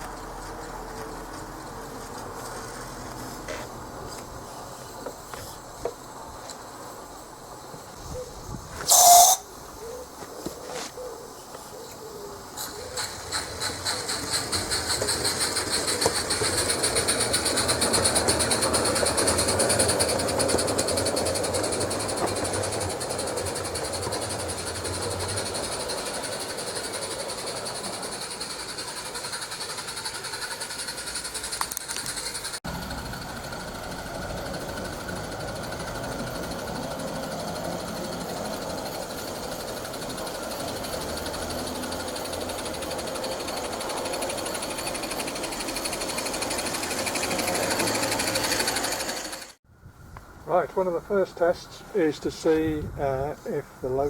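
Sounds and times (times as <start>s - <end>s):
model locomotive running: 8.8s - 9.5s, 12.6s - 49.6s.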